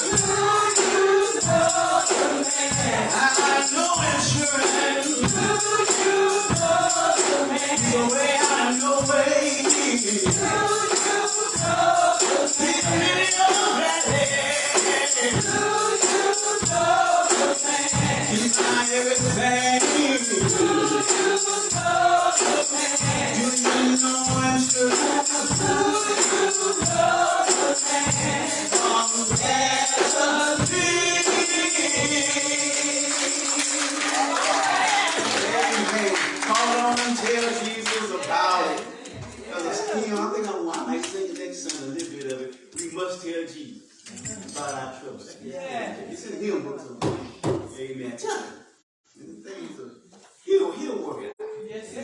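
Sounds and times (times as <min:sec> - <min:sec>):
steady beat: 0:00.0 - 0:33.8
tambourine: 0:00.0 - 0:35.1
gospel choir singing: 0:00.0 - 0:40.4.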